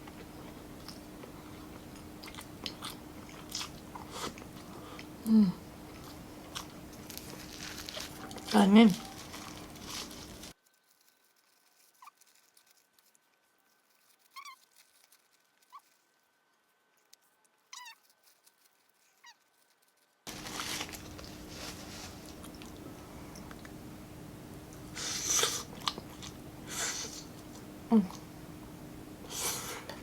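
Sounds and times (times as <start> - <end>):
steady room hum: 0.0 - 10.6, 20.3 - 30.0.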